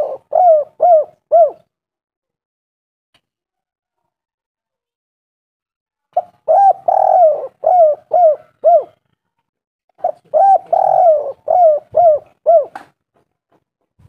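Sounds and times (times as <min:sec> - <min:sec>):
dove cooing: 0:00.0 - 0:01.7, 0:06.2 - 0:09.0, 0:10.0 - 0:12.9.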